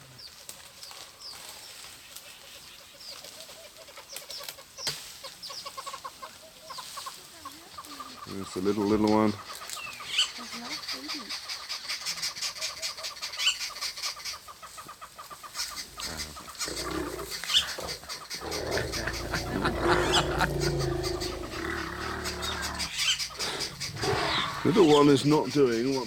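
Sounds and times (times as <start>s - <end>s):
small birds chattering alarm calls: 6.7s - 26.0s.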